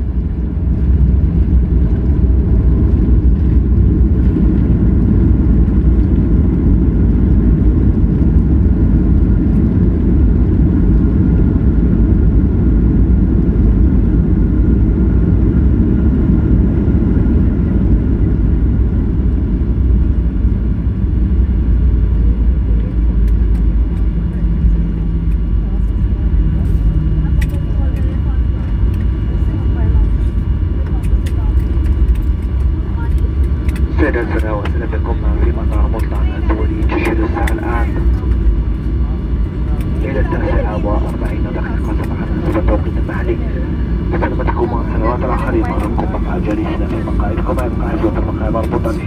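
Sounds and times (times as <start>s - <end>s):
jet engine cabin rumble: 0.0s - 49.0s
faint steady whine: 24.1s - 49.0s.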